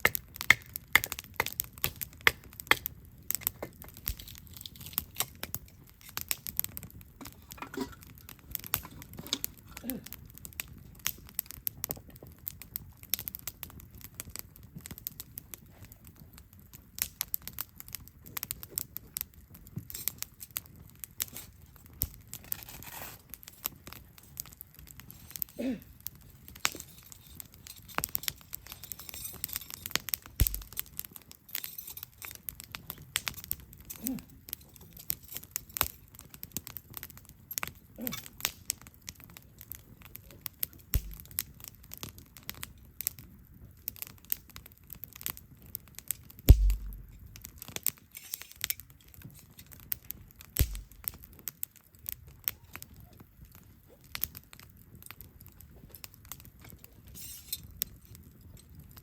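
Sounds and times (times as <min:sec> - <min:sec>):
campfire crackling and popping: 0:00.0 - 0:59.0
soft thuds: 0:46.5 - 0:47.2.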